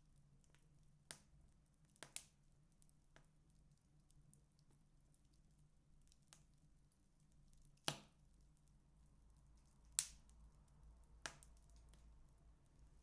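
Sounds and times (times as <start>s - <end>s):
wood fire crackling pops: 2.0s - 2.3s, 7.7s - 8.2s, 9.8s - 12.3s.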